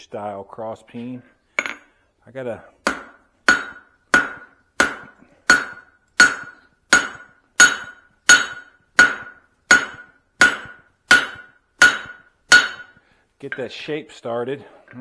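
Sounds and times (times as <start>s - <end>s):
hammer striking steel on anvil: 1.6s - 1.9s, 2.8s - 13.8s.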